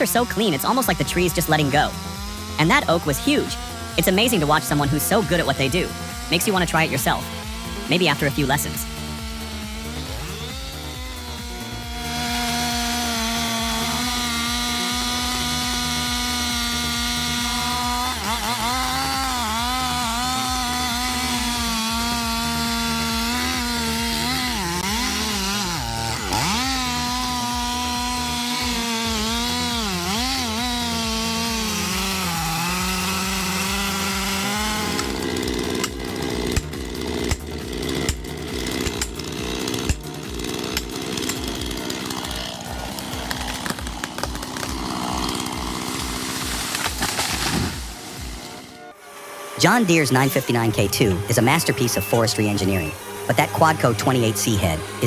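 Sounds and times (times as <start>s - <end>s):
chainsaw cutting wood: 0.0s - 55.0s
wood knocking and cracking: 42.7s - 44.9s.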